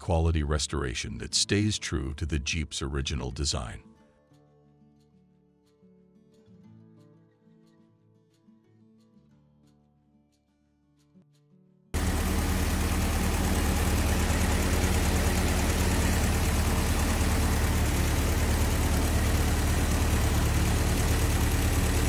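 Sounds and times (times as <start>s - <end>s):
car engine idling: 12.0s - 22.0s.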